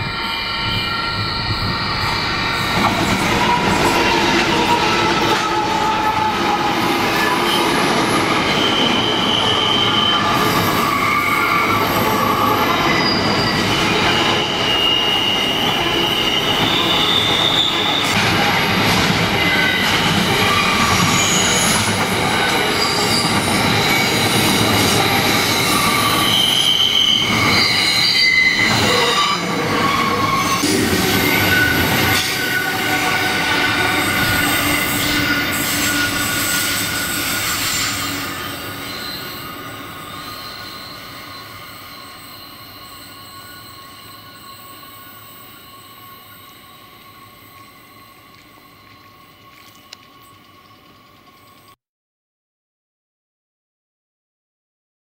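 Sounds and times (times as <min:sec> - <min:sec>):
freight train wagons rumbling: 0:00.0 - 0:40.6
wheels squealing: 0:00.0 - 0:51.8.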